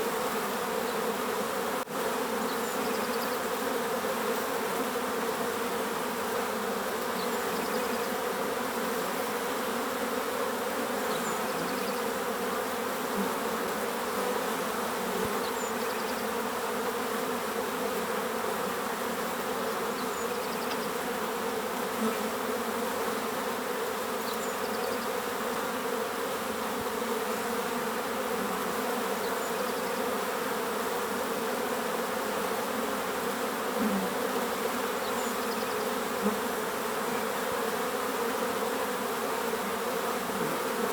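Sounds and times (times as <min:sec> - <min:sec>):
bees buzzing: 0:00.0 - 0:40.9.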